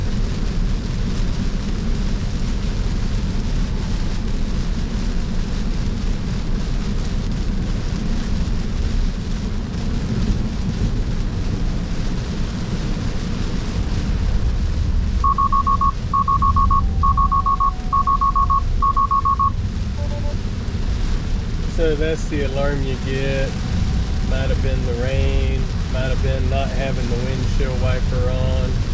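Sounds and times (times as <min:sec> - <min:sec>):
road and tyre noise in car cabin: 0:00.0 - 0:28.9
rapid high alarm beeps: 0:15.2 - 0:20.4.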